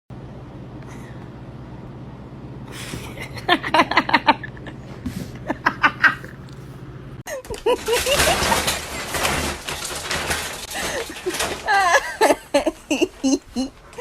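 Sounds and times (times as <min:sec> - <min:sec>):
steady low hum: 0:00.1 - 0:14.0
person laughing: 0:02.7 - 0:06.4, 0:07.3 - 0:08.6, 0:10.8 - 0:14.0.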